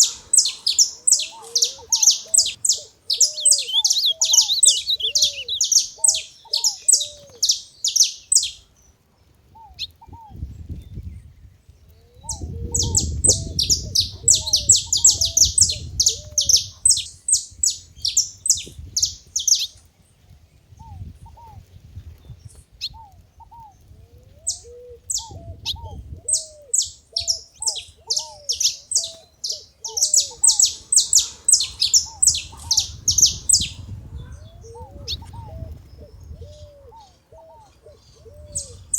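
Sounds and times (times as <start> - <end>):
finches chirping high notes: 0.0 - 8.6, 27.2 - 34.7
lower repeated bird call: 0.0 - 8.8, 12.0 - 19.8, 24.4 - 38.9.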